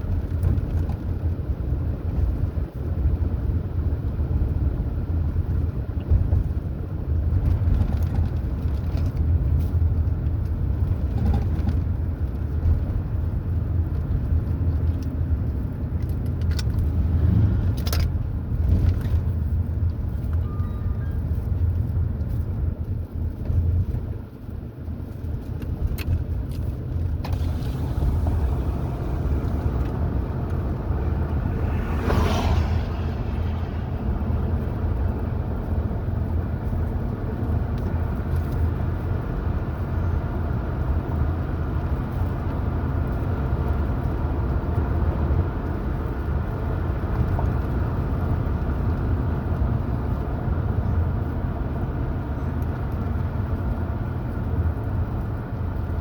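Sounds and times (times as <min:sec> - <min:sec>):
car driving on highway: 0:00.0 - 0:56.0
brief louder rush: 0:27.3 - 0:35.2.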